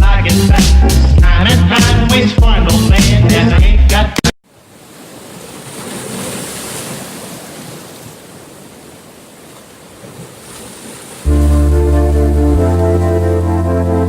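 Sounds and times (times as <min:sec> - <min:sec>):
sea waves washing on shore: 0:04.4 - 0:13.7.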